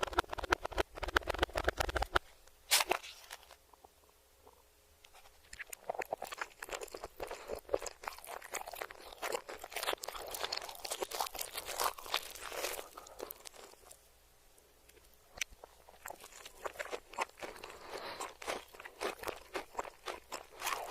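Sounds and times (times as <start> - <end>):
reversed crunchy chewing: 4.4 - 14.0, 14.8 - 20.9.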